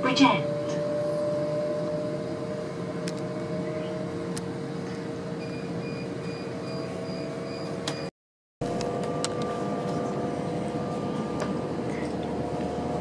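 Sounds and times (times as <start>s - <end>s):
faint pulsing high tone: 0.0s - 4.8s
train interior rumble: 0.0s - 13.0s.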